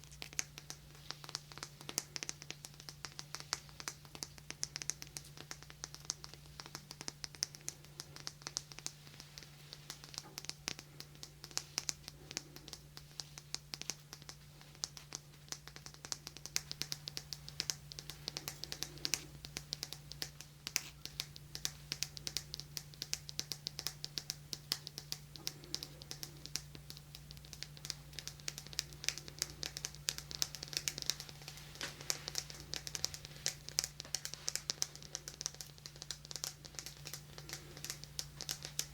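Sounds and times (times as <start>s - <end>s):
fingertip tapping and scratching: 0.0s - 38.9s
steady low hum: 0.0s - 38.9s.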